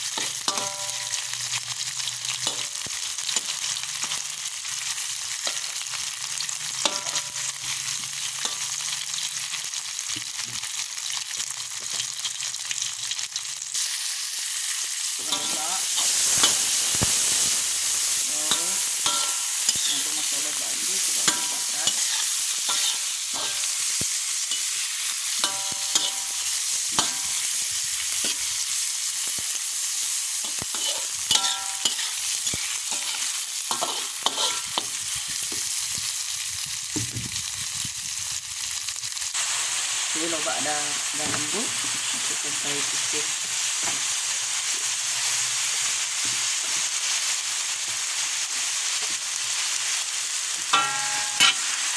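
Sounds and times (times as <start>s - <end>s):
food sizzling in a pan: 0.0s - 51.9s
spatula stirring and scraping: 15.1s - 28.8s, 30.4s - 36.0s, 50.7s - 51.8s.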